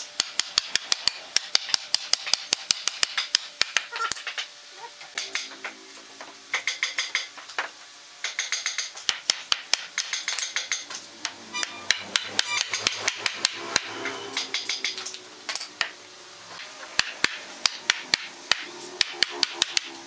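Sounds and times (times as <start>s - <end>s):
hammer striking wood: 11.6s - 15.0s, 17.0s - 20.0s.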